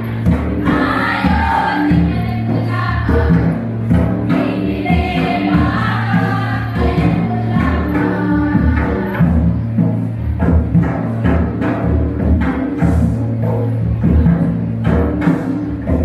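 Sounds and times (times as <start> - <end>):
group singing folk song: 0.0 - 9.4
drum beats: 0.0 - 16.0.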